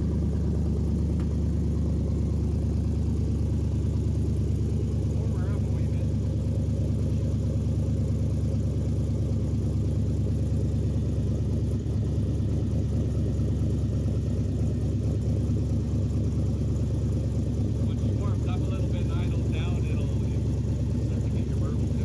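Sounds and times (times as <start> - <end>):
vehicle engine and road drone: 0.0 - 22.0.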